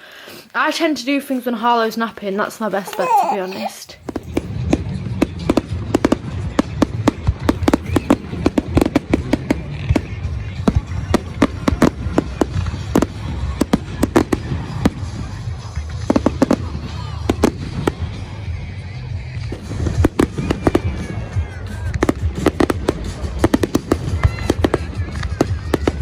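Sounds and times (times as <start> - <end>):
fireworks cracking and popping: 4.0 - 4.6, 6.8 - 10.1.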